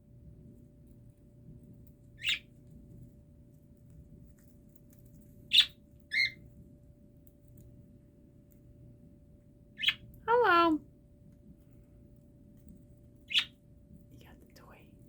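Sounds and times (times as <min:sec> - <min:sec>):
parrot chirping: 0:02.1 - 0:02.5, 0:05.5 - 0:06.4, 0:09.8 - 0:10.1, 0:13.2 - 0:13.6.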